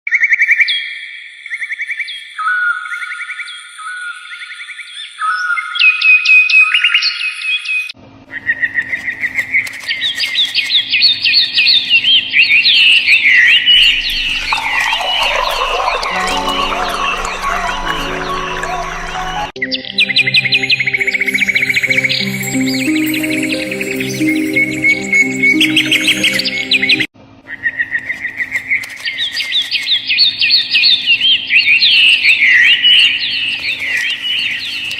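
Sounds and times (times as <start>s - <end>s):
birds chirping: 9.2s - 27.1s
low steady musical tones: 16.1s - 27.1s.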